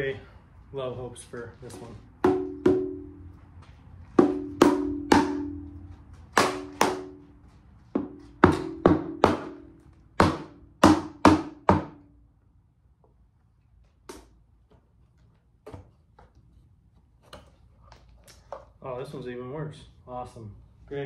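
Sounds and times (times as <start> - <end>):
hammer tapping metal cover: 2.2 - 3.1, 4.2 - 5.7.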